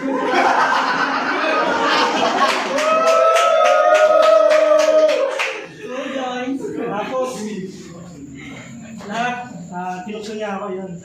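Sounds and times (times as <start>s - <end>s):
crowd cheering: 0.0s - 5.9s
rhythmic clapping: 1.9s - 5.8s
long held shout: 2.7s - 5.6s.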